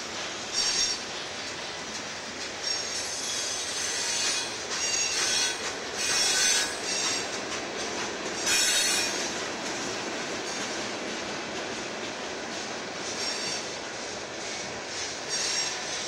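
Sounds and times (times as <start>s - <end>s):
train wheels rumbling on rails: 0.0s - 16.0s
high-pitched wheel squeal: 2.6s - 7.2s, 8.5s - 9.3s, 13.2s - 13.7s, 15.3s - 15.9s.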